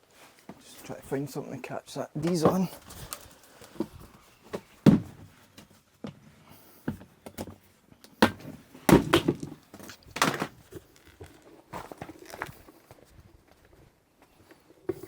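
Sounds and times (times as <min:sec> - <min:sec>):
hard objects knocking and thudding: 0:03.8 - 0:05.3, 0:08.2 - 0:10.6.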